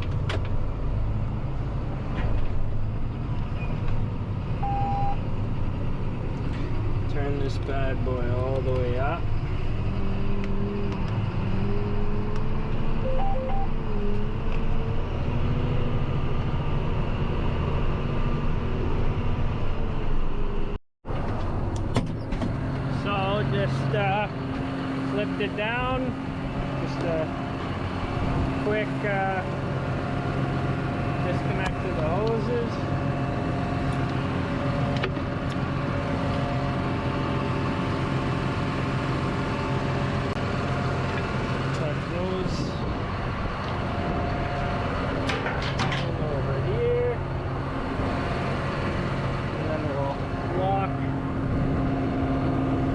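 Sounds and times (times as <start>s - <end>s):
tractor diesel engine running: 0.0s - 19.9s, 21.1s - 52.9s
short beeps: 4.6s - 5.2s, 13.0s - 13.8s.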